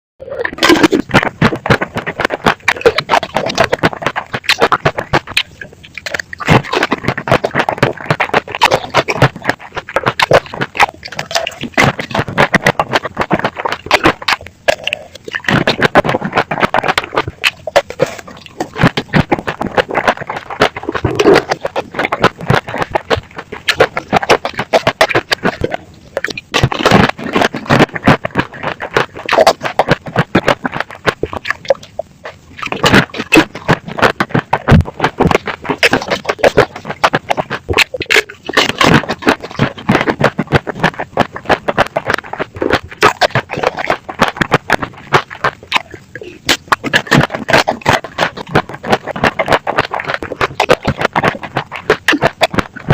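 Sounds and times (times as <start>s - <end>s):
crunching hard candy: 0.2s - 52.9s.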